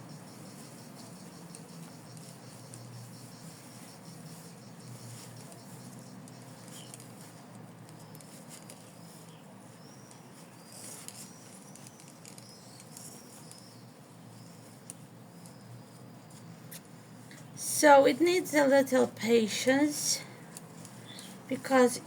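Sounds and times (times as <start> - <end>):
rustling and scratching of stuffing: 0.0 - 22.0
small clicks: 10.1 - 13.7.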